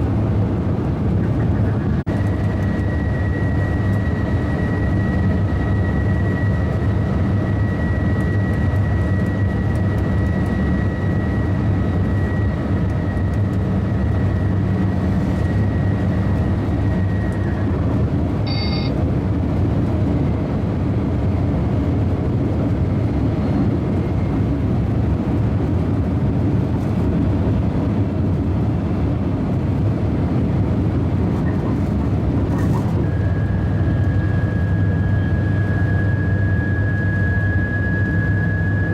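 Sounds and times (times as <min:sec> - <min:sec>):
train deep rumble: 0:00.0 - 0:38.9
thin high whine: 0:18.4 - 0:19.0, 0:32.9 - 0:38.9
short electronic beep: 0:18.5 - 0:19.0.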